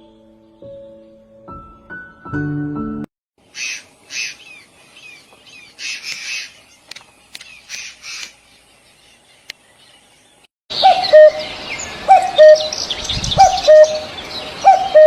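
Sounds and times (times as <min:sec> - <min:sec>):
birds squawking harshly: 0:03.4 - 0:09.5.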